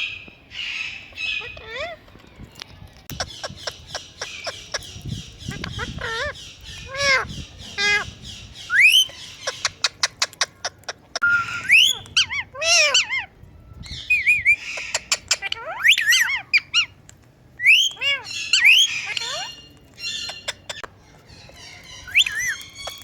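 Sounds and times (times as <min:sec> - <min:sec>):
parrot whistling and squawking: 0:00.0 - 0:02.0, 0:03.2 - 0:10.4, 0:11.2 - 0:17.0, 0:17.6 - 0:20.8, 0:21.6 - 0:23.0.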